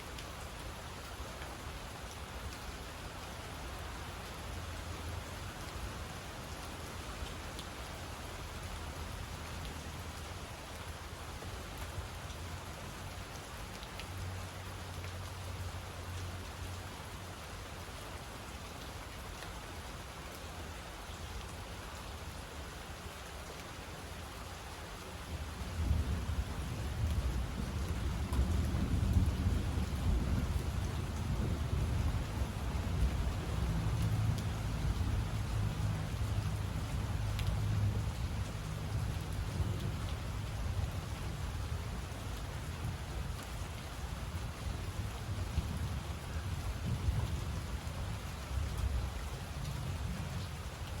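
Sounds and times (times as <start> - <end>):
steady rain falling: 0.0 - 51.0
thunder rumbling: 25.8 - 35.9.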